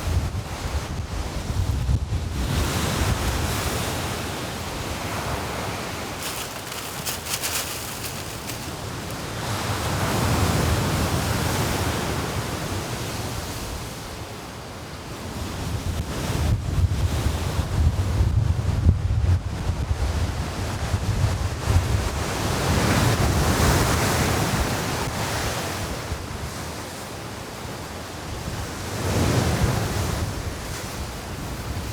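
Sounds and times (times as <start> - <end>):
waves washing onto beach: 2.4 - 14.7.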